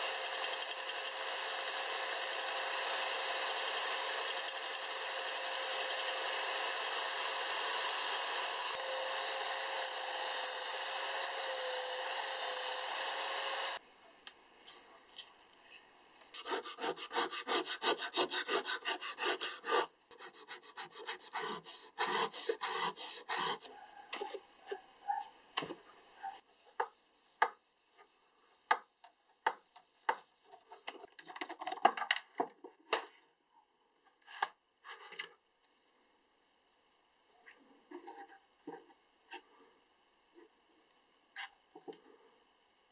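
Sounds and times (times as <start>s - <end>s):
belt sander grinding steel: 0.0s - 13.8s, 20.7s - 23.7s
pad rubbing steel: 16.4s - 23.7s.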